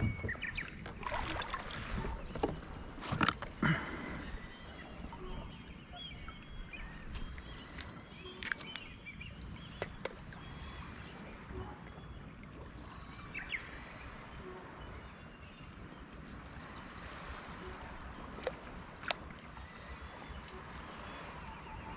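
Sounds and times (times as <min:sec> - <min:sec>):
low rush of wind and water: 0:00.0 - 0:21.9
small birds chirping: 0:03.6 - 0:17.0.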